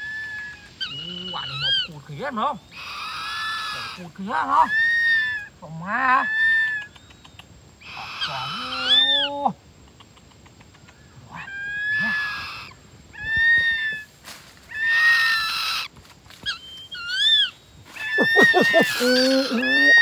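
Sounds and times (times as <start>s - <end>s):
shrill whistled bird calls: 0.0s - 1.9s, 14.7s - 20.0s.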